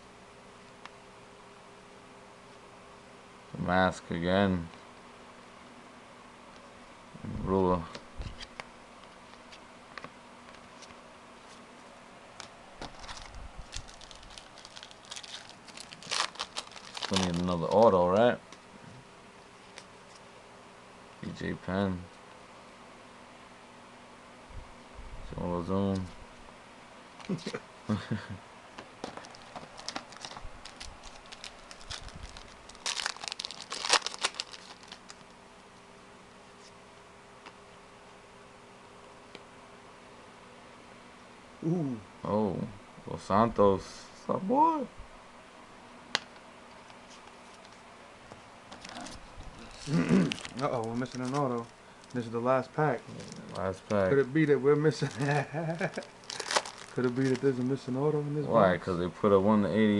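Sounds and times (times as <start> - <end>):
card pack wrapper crinkling: 12.8 - 18.3, 29.0 - 35.4, 48.7 - 52.3, 53.0 - 57.9.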